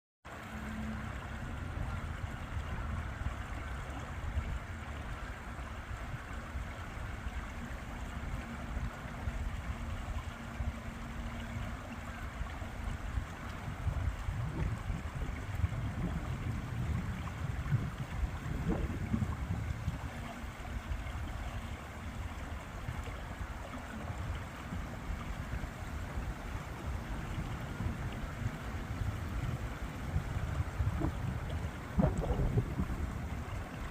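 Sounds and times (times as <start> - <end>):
river water rushing: 0.3 - 33.9
wind on microphone: 0.5 - 33.9
low rumble: 8.2 - 33.9.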